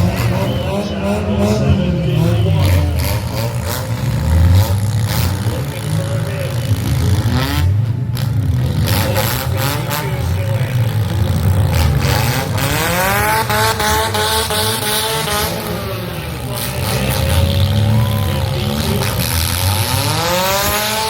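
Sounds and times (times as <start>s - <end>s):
car engines rumbling: 0.0s - 21.0s
engine revving whine: 0.0s - 21.0s.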